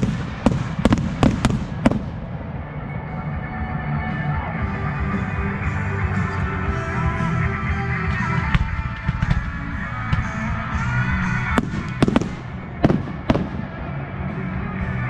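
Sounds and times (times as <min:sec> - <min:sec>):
rock music: 0:00.1 - 0:15.0
firework shells bursting with bangs: 0:11.4 - 0:13.9.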